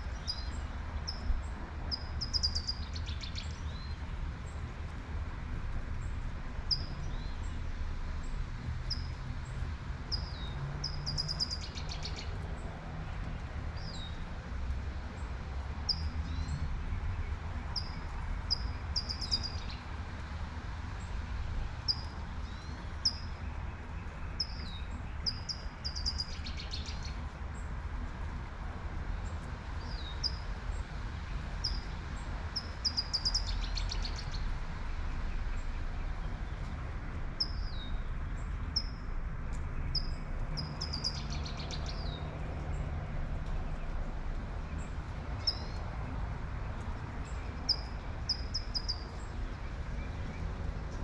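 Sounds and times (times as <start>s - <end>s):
low rumble of city traffic: 0.0s - 51.0s
songbird chirping and trilling: 1.9s - 4.0s, 10.1s - 12.4s, 17.6s - 19.9s, 24.0s - 27.2s, 32.6s - 34.5s, 39.8s - 42.2s, 45.4s - 45.8s, 47.2s - 50.4s.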